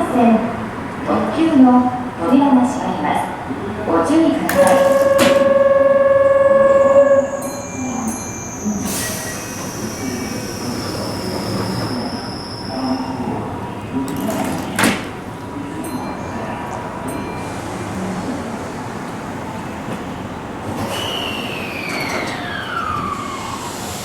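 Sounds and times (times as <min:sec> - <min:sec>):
steady train rumble: 0:00.0 - 0:24.0
loud steady tone: 0:04.5 - 0:09.3
train whine falling in pitch: 0:04.5 - 0:13.2, 0:20.8 - 0:24.0.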